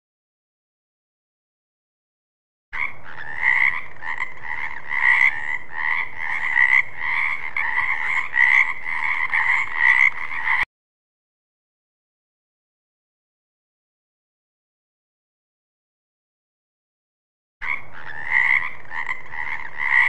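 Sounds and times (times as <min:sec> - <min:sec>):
frogs croaking in chorus: 0:02.8 - 0:10.6, 0:17.6 - 0:20.0.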